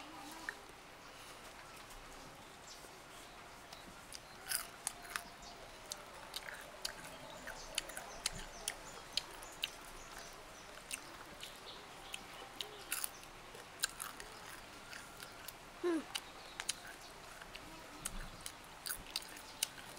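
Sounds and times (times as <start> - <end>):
crunchy chewing: 4.1 - 19.9.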